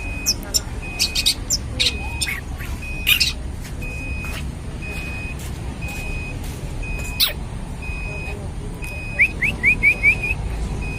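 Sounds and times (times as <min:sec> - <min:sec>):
bird giving sharp high calls: 0:00.0 - 0:03.4, 0:07.2 - 0:07.4.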